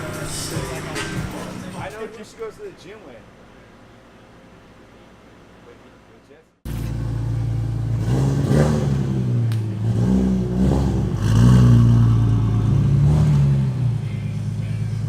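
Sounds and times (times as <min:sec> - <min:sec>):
car engine revving: 0:06.7 - 0:15.0.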